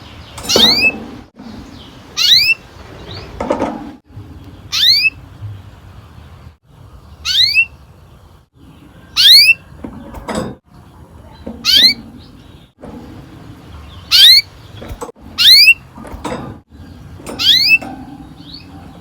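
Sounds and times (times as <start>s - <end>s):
canary chirping: 0.0s - 3.4s, 4.3s - 5.4s, 6.7s - 10.1s, 10.7s - 12.8s, 13.5s - 19.0s
soft low bird sound: 0.0s - 19.0s.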